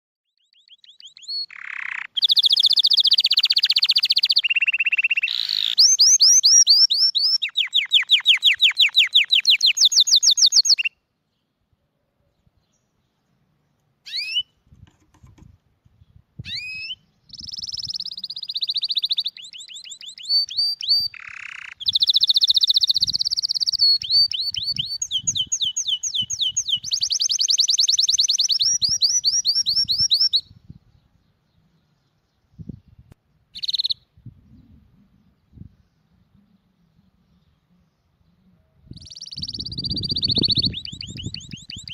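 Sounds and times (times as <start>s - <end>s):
songbird trilling: 0.4s - 11.0s, 14.0s - 14.5s, 16.4s - 30.6s, 33.5s - 34.1s, 38.8s - 41.9s.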